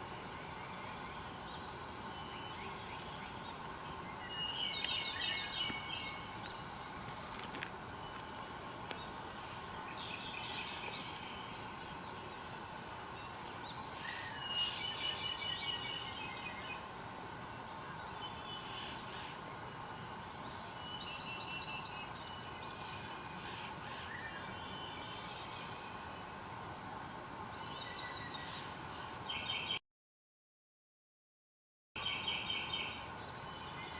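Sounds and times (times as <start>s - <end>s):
steady background noise: 0.0s - 29.2s
wild birds singing and calling: 0.0s - 29.8s, 32.0s - 33.9s.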